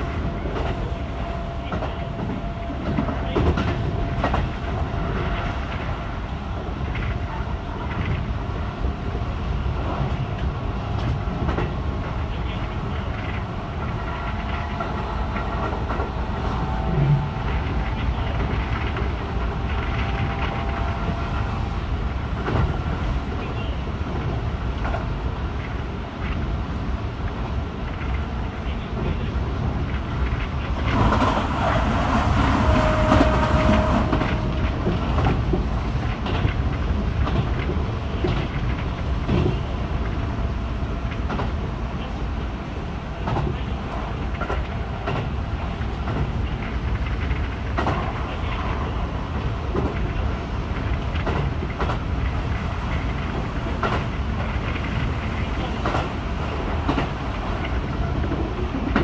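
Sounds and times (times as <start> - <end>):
train wheels rumbling on rail: 0.0 - 59.0
wheels clicking over rail joints: 27.2 - 40.3, 43.2 - 59.0.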